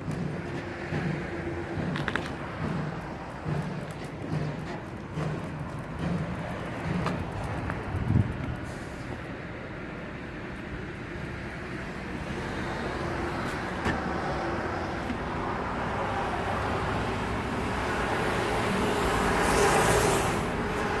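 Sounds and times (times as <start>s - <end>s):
vehicle passing close: 11.1s - 21.0s.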